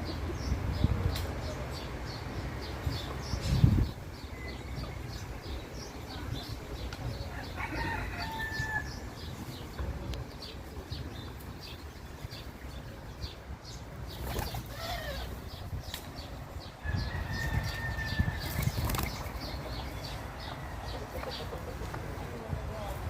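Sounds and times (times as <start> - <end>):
small birds chirping: 0.0 - 23.0
rooster crowing: 7.3 - 9.0, 16.8 - 18.5.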